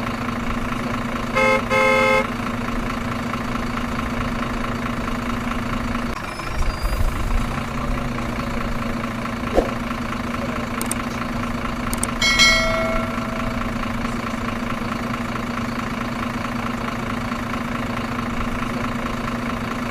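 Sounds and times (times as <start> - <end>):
truck engine idling: 0.0 - 19.9
short ringing ding: 12.2 - 14.1.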